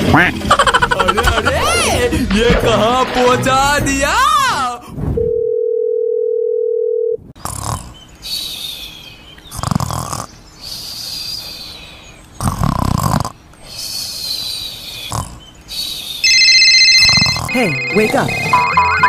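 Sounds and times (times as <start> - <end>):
person snoring: 7.4 - 8.0, 17.0 - 17.6
whistling breath: 13.7 - 15.1
steady beep-like tone: 16.2 - 19.0.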